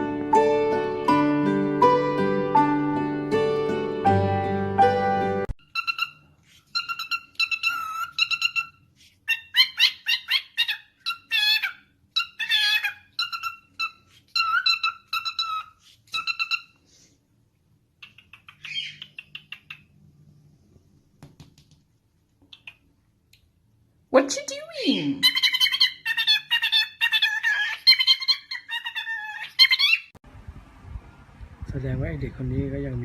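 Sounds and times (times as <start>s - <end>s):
parrot calling: 5.6s - 16.8s, 18.0s - 20.0s, 22.5s - 22.9s, 24.6s - 30.2s.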